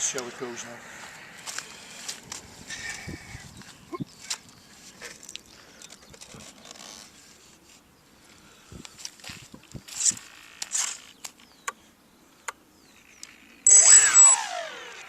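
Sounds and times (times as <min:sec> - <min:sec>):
electric motors whining: 0:13.0 - 0:15.0.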